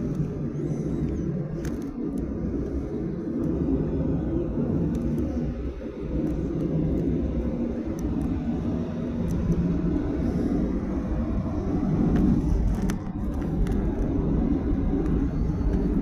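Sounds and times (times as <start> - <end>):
faint clicks: 0.0 - 10.2
aircraft cabin engine rumble: 0.0 - 16.0.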